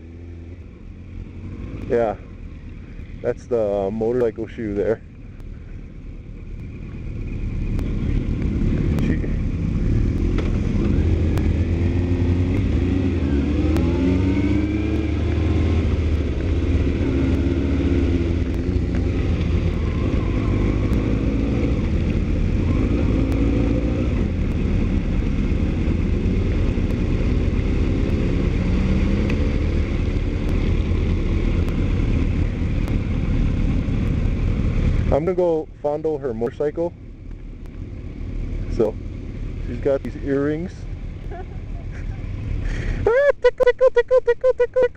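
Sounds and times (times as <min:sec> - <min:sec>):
vehicle engine revving: 0:06.5 - 0:36.9.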